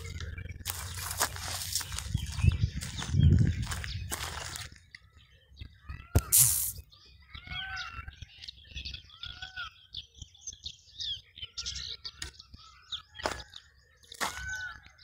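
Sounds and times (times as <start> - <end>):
many birds chirping: 0.0 - 15.0
sharp click: 6.2 - 6.8
short rush of noise: 6.2 - 6.8.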